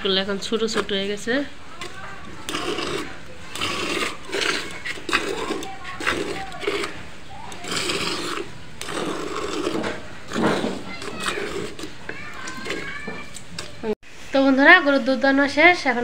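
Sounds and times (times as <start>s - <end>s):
milk squirting into a pail: 1.8s - 13.8s.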